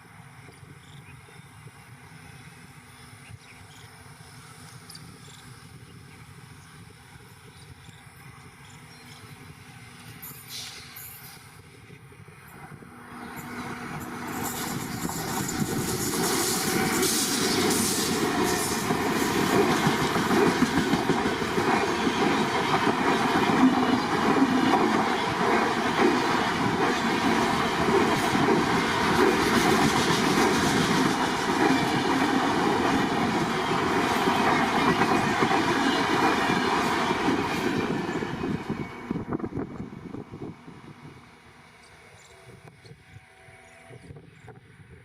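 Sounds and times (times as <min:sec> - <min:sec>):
train wheels clattering over rails: 0:13.3 - 0:39.6.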